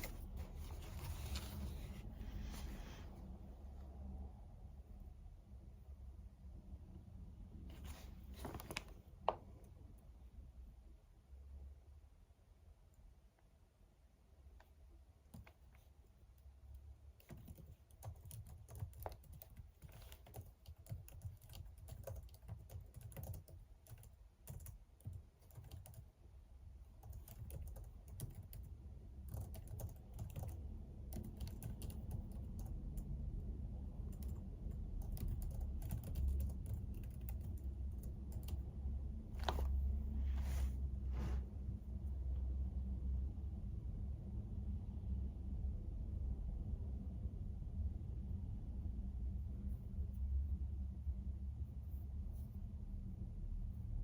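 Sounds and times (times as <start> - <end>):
typing on computer keyboard: 17.2 - 26.1, 27.0 - 33.1, 34.1 - 38.6
low rumble: 32.5 - 54.0.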